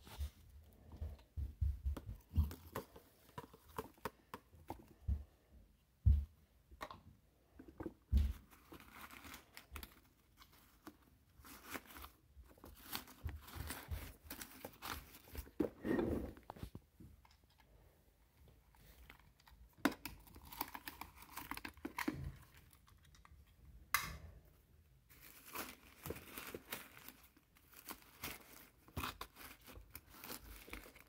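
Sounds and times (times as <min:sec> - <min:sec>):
paper crinkling: 0:08.3 - 0:16.8, 0:18.7 - 0:23.5, 0:25.1 - 0:31.0.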